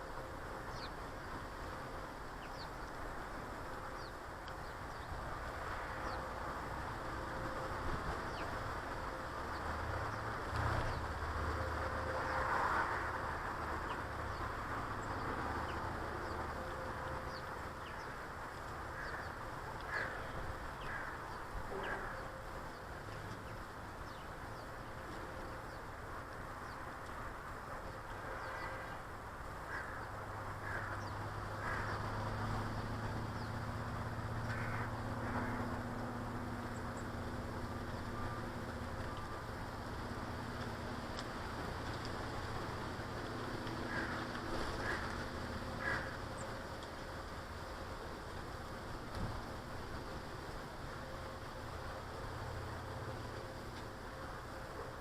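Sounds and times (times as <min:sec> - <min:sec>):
birds chirping: 0:00.5 - 0:06.4, 0:13.6 - 0:40.2.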